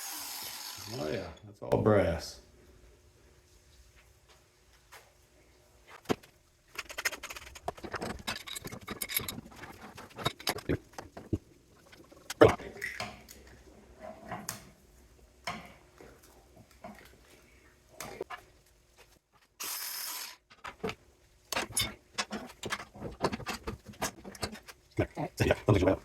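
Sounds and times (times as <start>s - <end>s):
metal parts clinking and scraping: 6.7s - 10.8s, 21.6s - 24.7s.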